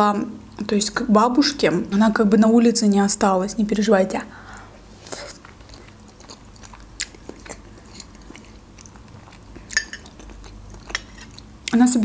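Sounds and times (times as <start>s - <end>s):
person chewing food: 4.6s - 11.8s.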